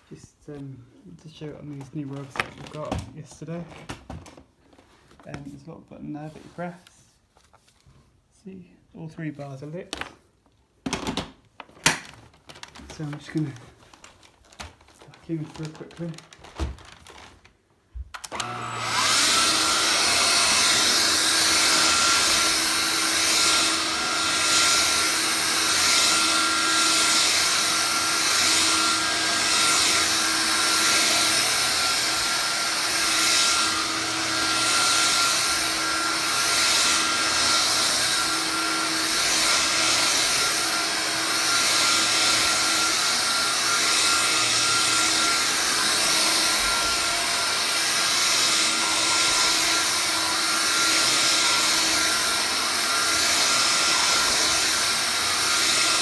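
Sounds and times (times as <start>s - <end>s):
vacuum cleaner running: 18.2s - 56.0s.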